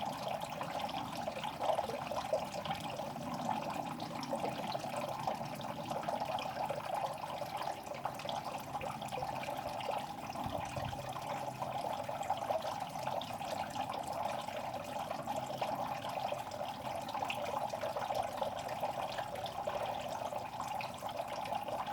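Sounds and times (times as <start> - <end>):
pond water splashing and trickling: 0.0 - 21.9.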